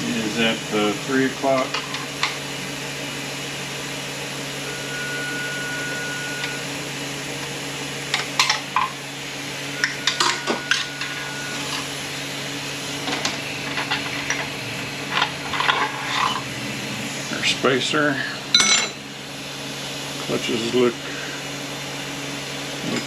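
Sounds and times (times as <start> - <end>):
thin high tone: 4.5 - 6.9, 9.6 - 11.8.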